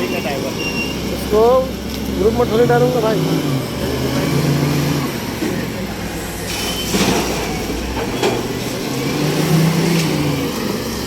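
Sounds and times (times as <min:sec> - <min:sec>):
truck engine running: 0:00.0 - 0:11.0
high squeal: 0:00.1 - 0:01.1, 0:06.4 - 0:08.3.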